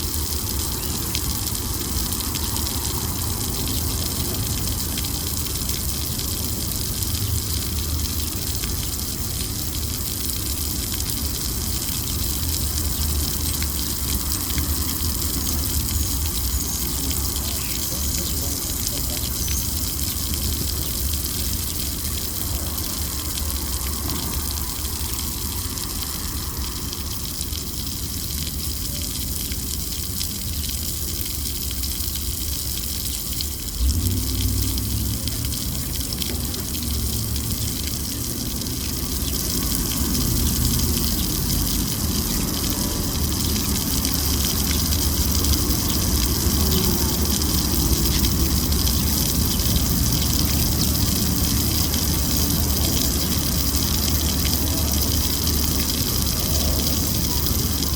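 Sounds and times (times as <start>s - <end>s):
traffic rushing noise: 0.0s - 7.6s, 12.5s - 28.4s, 33.6s - 57.9s
deep traffic rumble: 0.0s - 57.9s
heavy low rumble: 33.7s - 39.1s.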